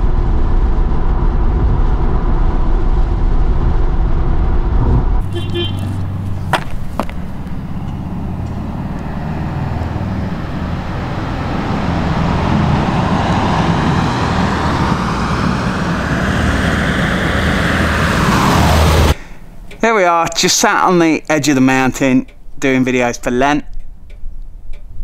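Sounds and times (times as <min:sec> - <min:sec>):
road and wind noise: 0:00.0 - 0:25.0
car engine under load: 0:04.0 - 0:19.8.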